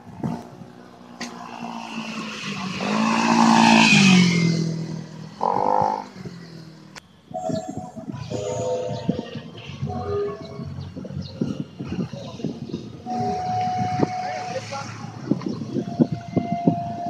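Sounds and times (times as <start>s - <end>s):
vehicle engine passing by: 0.0s - 6.9s.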